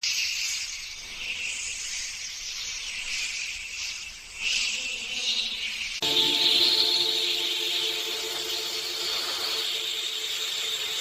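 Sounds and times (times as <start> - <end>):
high-pitched insect chorus: 6.0 - 11.0.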